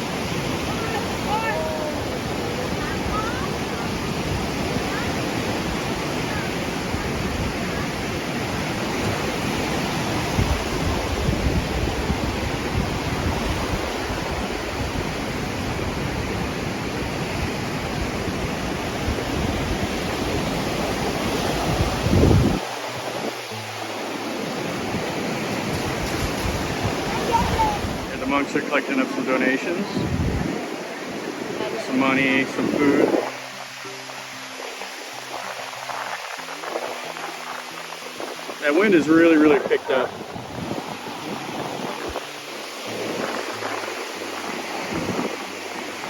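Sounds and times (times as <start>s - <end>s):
wind buffeting microphone: 0.0s - 28.3s, 29.8s - 46.0s
surf washing onto shore: 0.0s - 46.0s.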